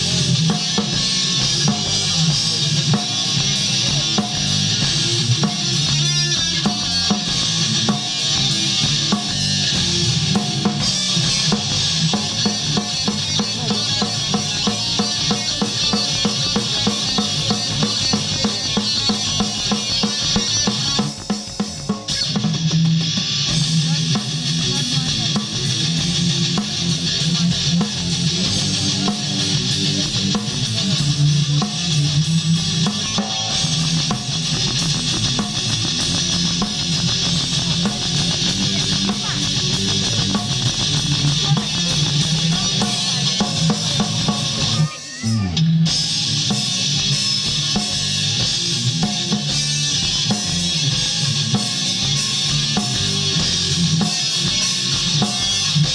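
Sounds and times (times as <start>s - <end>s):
electric guitar: 0.0s - 55.9s
rock band playing: 0.0s - 55.9s.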